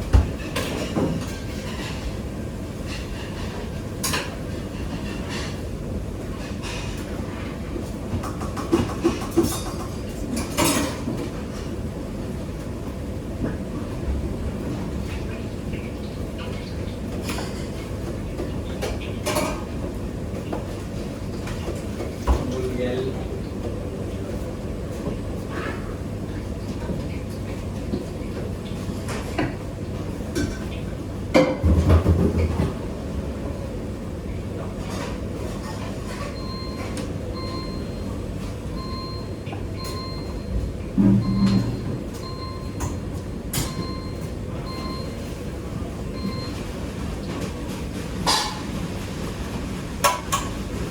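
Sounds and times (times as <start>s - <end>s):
low kitchen rumble: 0.0s - 50.9s
utensils and cookware clattering: 0.4s - 2.2s, 8.2s - 11.3s, 48.0s - 49.0s
high electronic beep: 41.0s - 42.7s.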